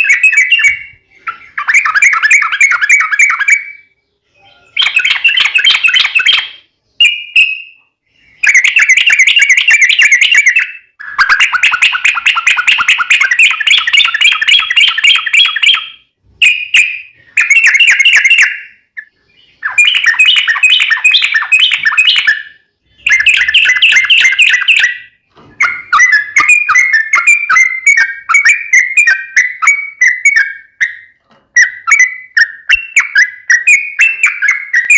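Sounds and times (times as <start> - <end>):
bird singing chattering notes: 0.0 - 34.9.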